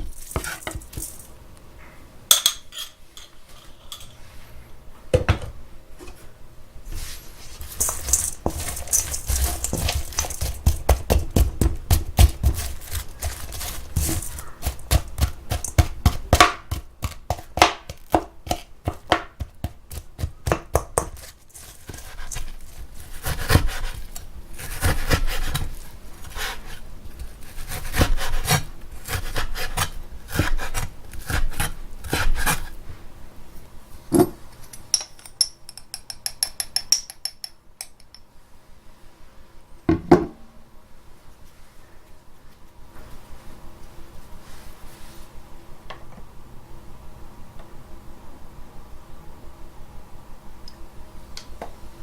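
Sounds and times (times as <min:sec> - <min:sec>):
scraping and rubbing: 0:00.0 - 0:01.3, 0:02.8 - 0:04.6, 0:06.9 - 0:15.8.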